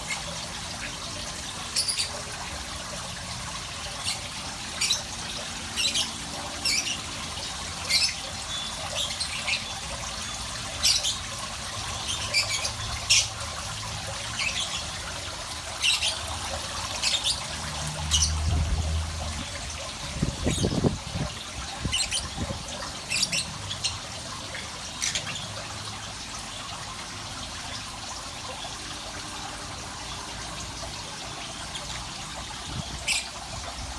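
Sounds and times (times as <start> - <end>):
trickling water: 0.0 - 33.9.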